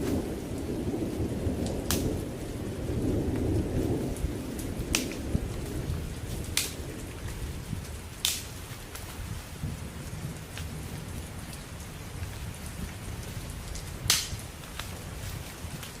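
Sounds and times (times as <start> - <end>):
heavy rain: 0.0 - 16.0
thunder rumble: 0.0 - 16.0
loud sharp snap: 1.9 - 2.1, 4.9 - 5.2, 6.6 - 6.8, 8.2 - 8.5, 14.1 - 14.4.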